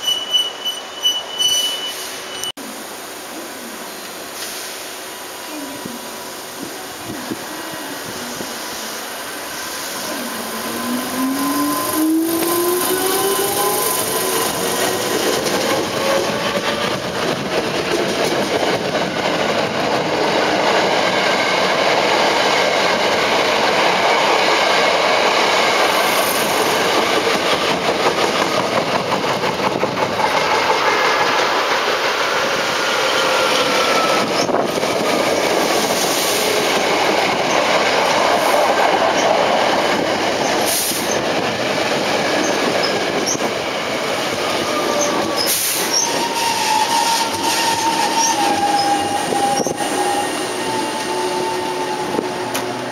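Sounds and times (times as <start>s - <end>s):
train wheels squealing: 0.0s - 2.6s, 32.8s - 34.6s, 44.4s - 52.8s
train running on rails: 0.0s - 52.9s.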